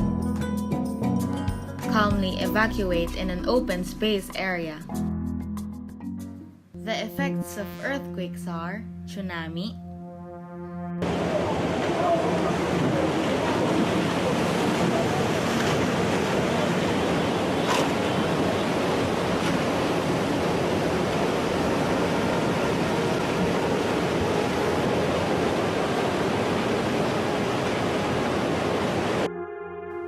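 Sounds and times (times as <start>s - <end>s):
seawater surging: 11.0s - 29.3s.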